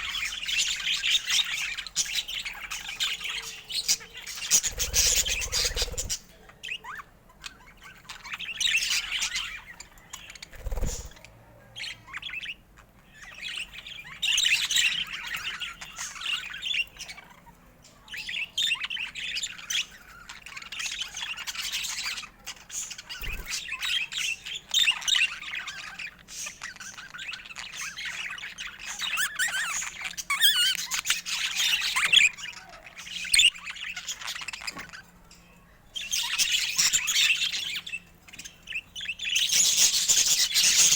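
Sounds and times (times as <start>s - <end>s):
budgerigars chattering and warbling: 0.0s - 40.9s.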